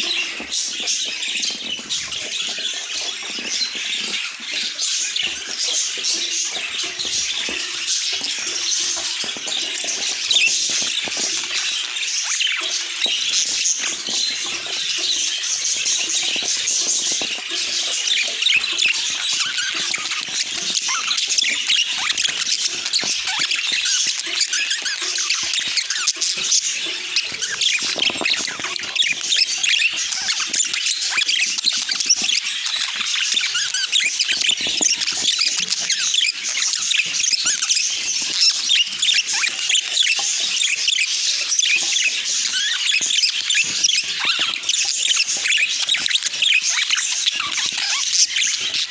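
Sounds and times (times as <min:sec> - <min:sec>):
budgies chirping and chattering: 0:00.0 - 0:48.9.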